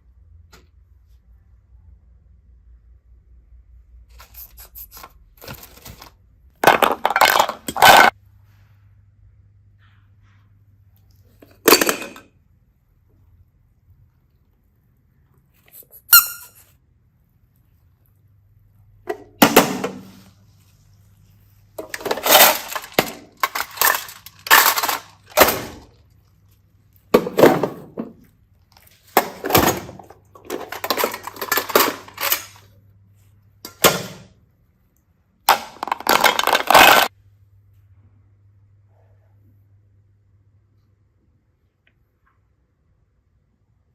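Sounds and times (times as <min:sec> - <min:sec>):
hard objects clattering: 0:05.4 - 0:08.2, 0:21.8 - 0:26.0, 0:27.1 - 0:32.7, 0:35.5 - 0:37.1.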